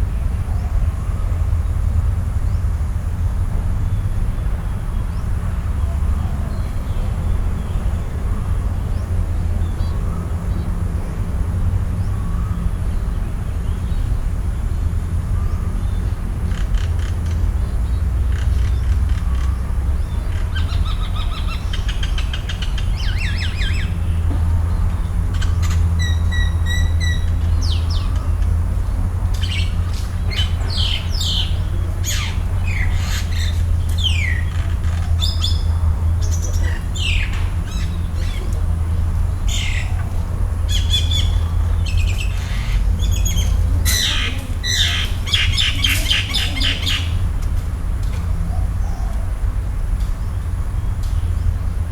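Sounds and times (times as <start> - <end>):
steady low rumble: 0.0 - 51.9
birds chirping and calling: 15.3 - 51.6.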